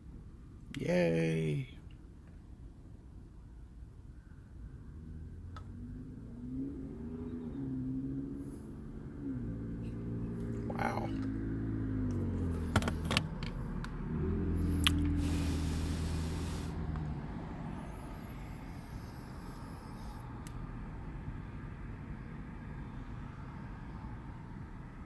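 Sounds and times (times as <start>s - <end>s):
car engine running: 8.2s - 20.5s.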